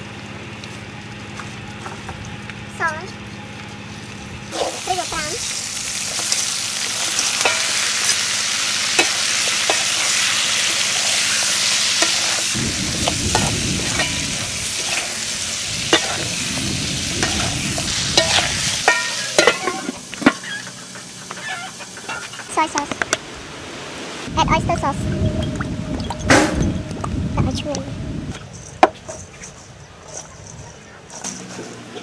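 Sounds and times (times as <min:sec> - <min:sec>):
food sizzling in a hot pan: 0:04.5 - 0:24.3
low rushing sound: 0:12.5 - 0:18.9, 0:23.4 - 0:28.4.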